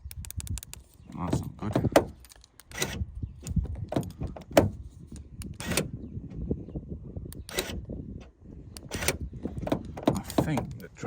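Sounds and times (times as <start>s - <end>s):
car door handle clicks and clunks: 1.2s - 4.8s, 7.4s - 10.9s.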